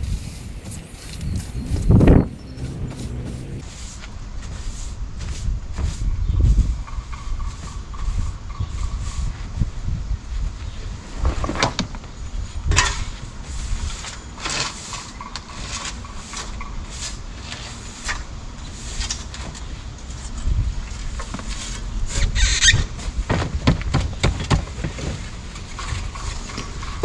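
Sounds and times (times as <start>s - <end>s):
low rumble: 0.0s - 3.6s
bedding scraped and shovelled: 0.0s - 6.1s, 12.8s - 23.3s.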